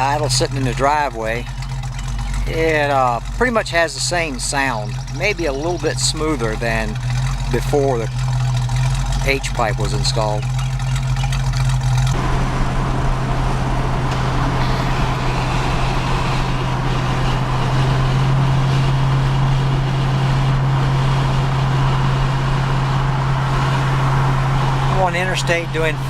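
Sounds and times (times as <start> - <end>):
car exhaust hum: 0.0 - 26.0
road and tyre noise: 0.0 - 26.0.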